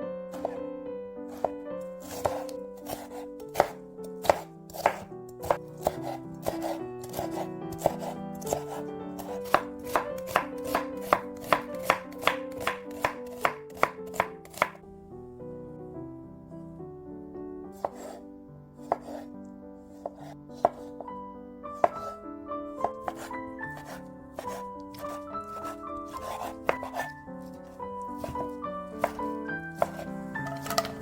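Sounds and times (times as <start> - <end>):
soft background music: 0.0 - 31.0
knife chopping on cutting board: 0.4 - 0.6, 1.3 - 14.8, 17.8 - 18.2, 18.8 - 19.2, 20.0 - 21.1, 21.8 - 22.2, 22.8 - 31.0.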